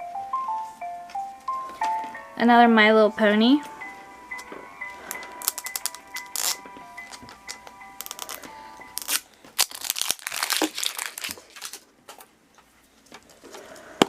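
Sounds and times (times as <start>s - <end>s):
faint chiming tune: 0.0s - 9.1s
wrapper crinkling and tearing: 5.1s - 12.2s.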